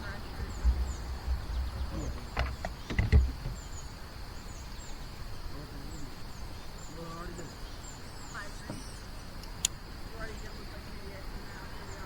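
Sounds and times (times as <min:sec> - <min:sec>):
small birds chirping: 0:00.0 - 0:12.0
steady insect buzz: 0:00.0 - 0:12.0
sharp knocks with low thumps: 0:00.6 - 0:03.7.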